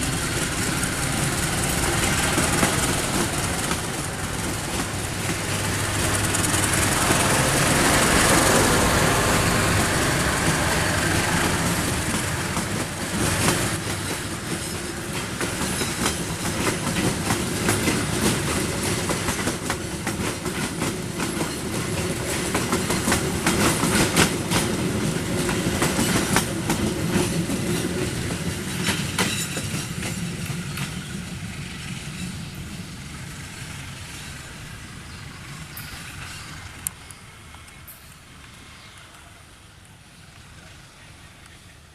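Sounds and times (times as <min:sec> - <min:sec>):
train wheels clacking on rail joints: 0:00.0 - 0:32.6
diesel locomotive engine: 0:00.0 - 0:41.9.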